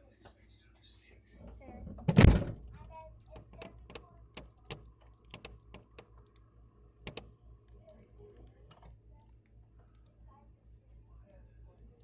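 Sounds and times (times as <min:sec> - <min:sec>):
faint light clicks and taps: 0:02.9 - 0:10.2.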